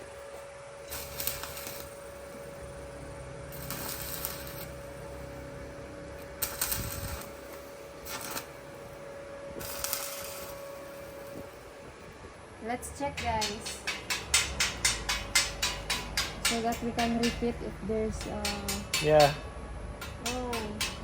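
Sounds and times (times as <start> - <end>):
welding arc crackling: 0.0 - 12.1
steady hum: 0.0 - 21.0.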